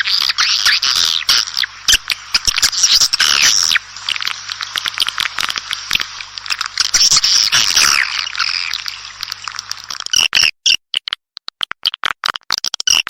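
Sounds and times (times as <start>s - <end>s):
swiftlets twittering: 0.0s - 10.0s.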